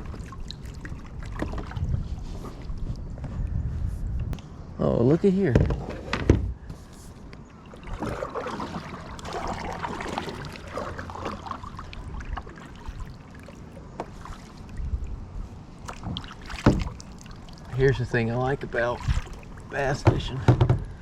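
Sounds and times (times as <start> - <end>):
water splashing around kayak: 0.0 - 3.0, 7.5 - 21.0
knocks on kayak hull: 15.9 - 16.9, 20.0 - 21.0.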